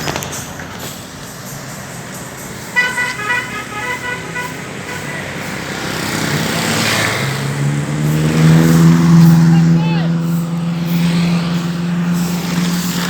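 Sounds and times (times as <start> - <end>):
vehicle passing by: 0.0 - 13.0
vehicle horn short beeps: 2.8 - 5.3.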